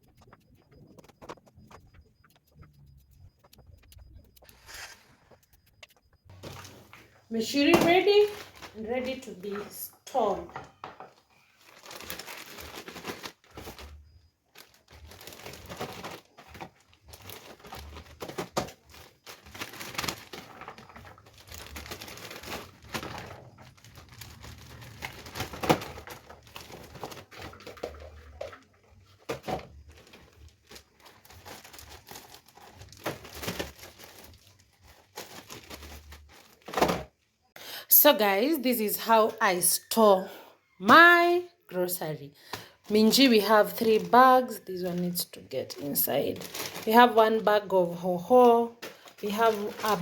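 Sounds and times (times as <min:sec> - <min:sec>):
plastic bags crinkling: 0:06.3 - 0:37.2, 0:42.8 - 0:50.0.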